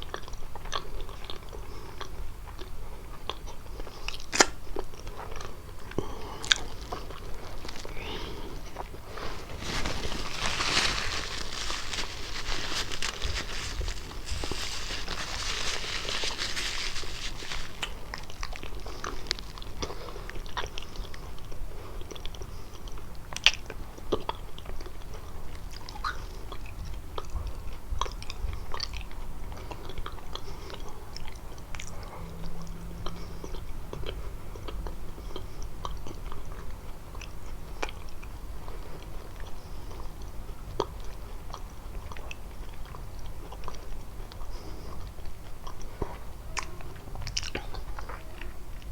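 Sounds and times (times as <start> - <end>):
pastry biting and chewing: 3.3 - 9.5
rustling hiss: 6.8 - 19.4.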